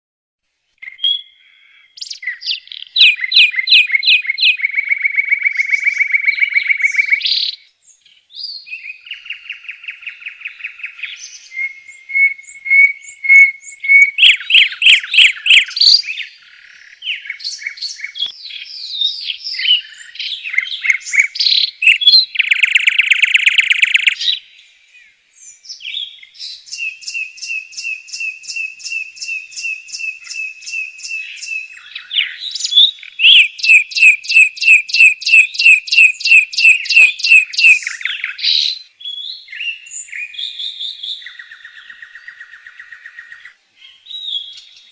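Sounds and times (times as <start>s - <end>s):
birds calling with harsh trills: 0.7s - 44.9s.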